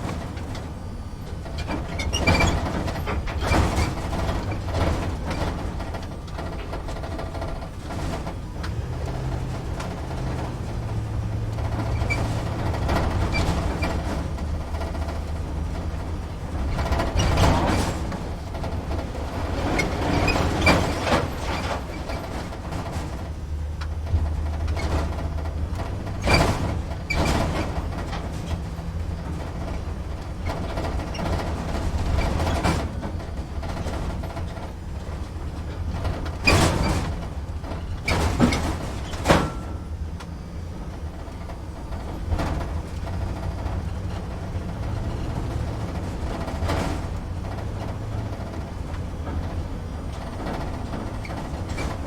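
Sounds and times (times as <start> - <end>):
truck engine rumbling: 0.0 - 52.0
sharp rattles and knocks: 1.4 - 40.3.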